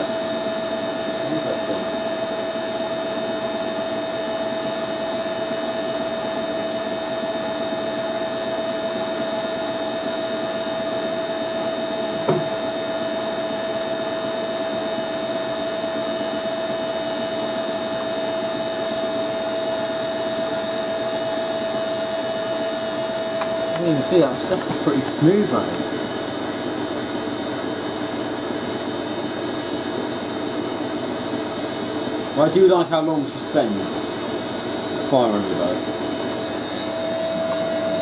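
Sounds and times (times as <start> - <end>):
washing machine motor whine: 0.0 - 38.0
washing machine drum rushing: 12.0 - 13.0.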